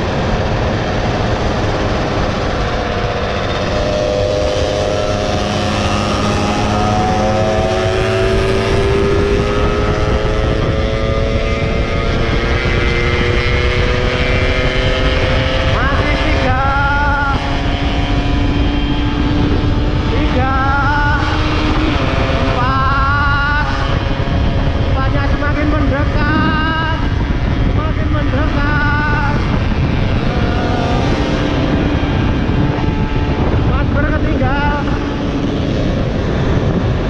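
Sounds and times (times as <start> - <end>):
two-stroke motorcycle engine: 0.0 - 37.0
wind noise on microphone: 0.0 - 37.0.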